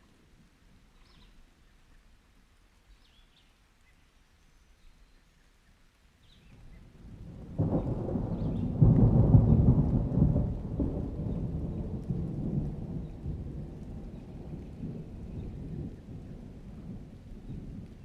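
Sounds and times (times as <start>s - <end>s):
thunder rumbling: 6.7s - 18.0s.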